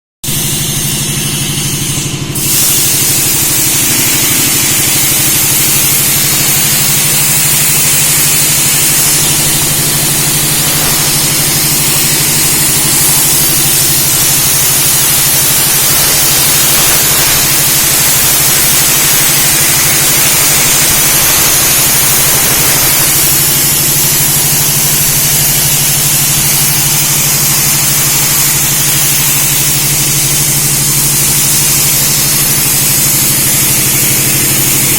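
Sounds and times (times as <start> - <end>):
low machine hum: 0.3 - 26.0
plasma arc hissing: 0.3 - 34.9.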